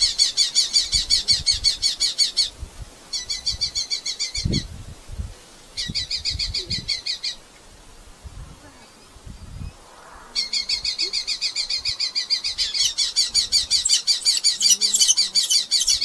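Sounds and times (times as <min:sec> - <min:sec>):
falcon shrill repeated calls: 0:12.1 - 0:16.0.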